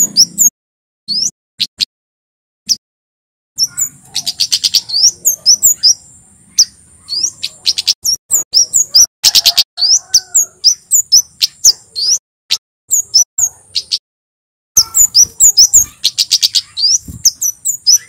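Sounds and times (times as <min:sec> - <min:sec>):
bird singing sharp high chirps: 0:00.0 - 0:00.5, 0:01.1 - 0:01.8, 0:03.6 - 0:12.2, 0:12.9 - 0:14.0, 0:14.8 - 0:18.0.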